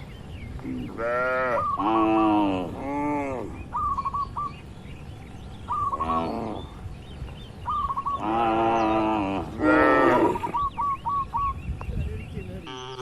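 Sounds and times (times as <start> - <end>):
bird calling repeated notes: 0.0 - 13.0
cattle mooing: 0.9 - 3.6, 8.2 - 10.6.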